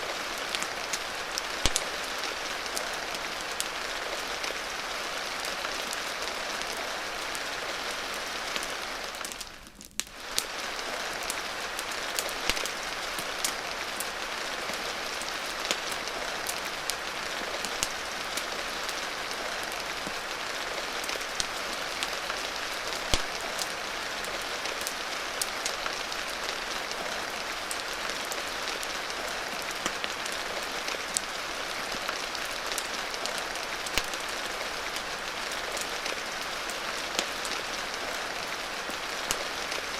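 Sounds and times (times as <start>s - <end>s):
steady rain hiss: 0.0s - 39.9s
fireplace pops and crackles: 1.6s - 1.9s, 12.1s - 13.6s, 23.0s - 23.7s, 32.7s - 34.3s.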